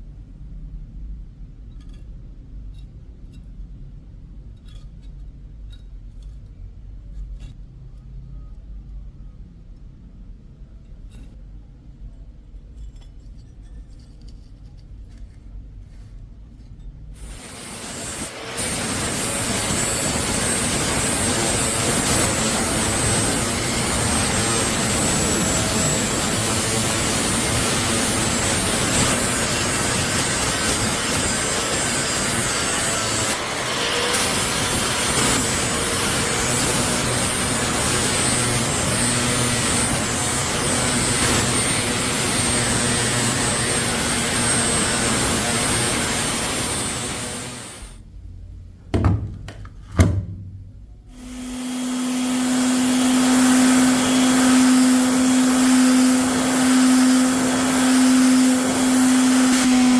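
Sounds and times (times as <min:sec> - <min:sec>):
power tool grinding steel: 0:17.2 - 0:47.9, 0:51.1 - 0:59.9.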